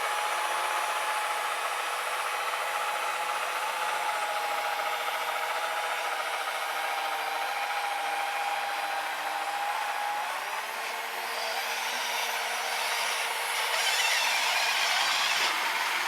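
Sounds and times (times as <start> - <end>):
electric motor whining: 9.0 - 16.0.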